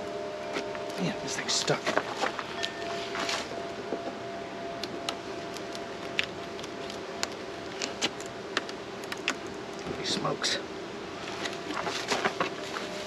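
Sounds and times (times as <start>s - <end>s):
hive tool prying clicks: 4.8s - 9.9s.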